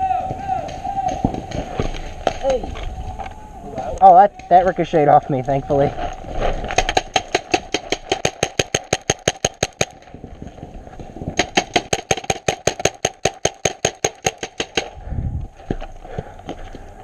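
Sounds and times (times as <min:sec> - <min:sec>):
paintball marker firing bursts: 0:06.8 - 0:10.0, 0:11.4 - 0:15.0.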